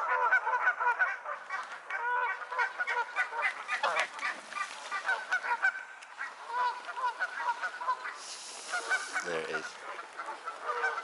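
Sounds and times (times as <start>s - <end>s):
waterfowl calling: 0.0s - 11.0s.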